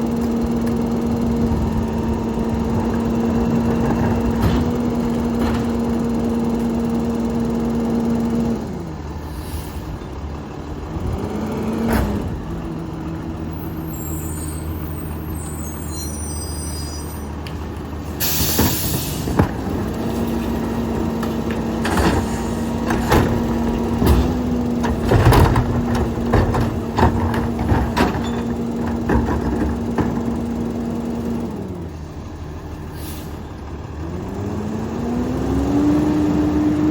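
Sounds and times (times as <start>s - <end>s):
garbage truck diesel engine revving: 0.0s - 36.9s
air brake hiss: 9.2s - 10.0s, 18.2s - 19.4s, 32.9s - 33.5s.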